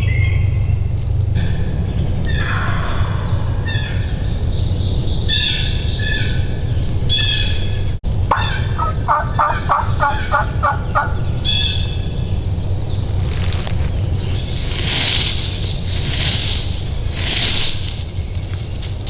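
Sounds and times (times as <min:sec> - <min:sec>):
low rumble: 0:00.0 - 0:19.0
songbirds chirping: 0:00.0 - 0:19.0
wild turkey yelps: 0:05.2 - 0:12.2.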